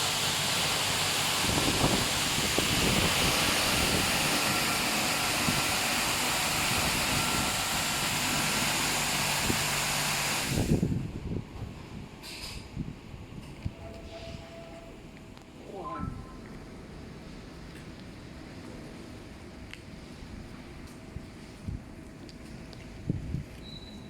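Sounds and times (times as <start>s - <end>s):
car wash machine rushing: 0.0s - 11.0s.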